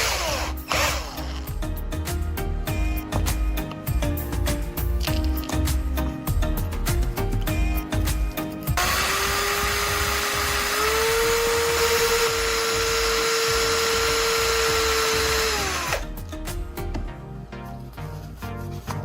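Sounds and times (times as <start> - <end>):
electric drill running: 0.0 - 1.5, 8.8 - 16.1.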